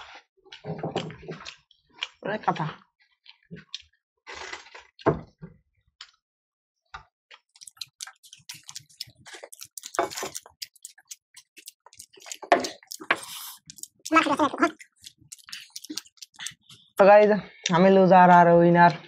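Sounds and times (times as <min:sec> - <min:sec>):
chewing and lip-smacking: 0:00.5 - 0:04.0, 0:07.3 - 0:17.0.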